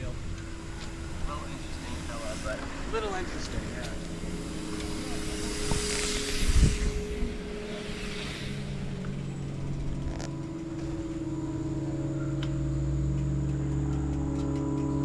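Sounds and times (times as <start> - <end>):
wind on microphone: 0.0 - 10.8
engine humming steadily: 0.0 - 15.0.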